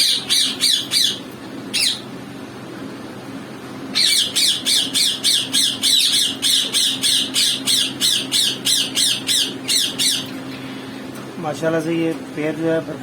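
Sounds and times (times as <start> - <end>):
parakeet harsh squawks: 0.0 - 2.1, 3.9 - 10.4.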